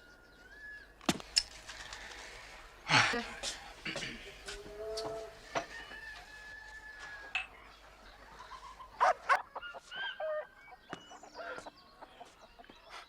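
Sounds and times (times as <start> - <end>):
fowl clucking and calling: 8.2 - 13.0.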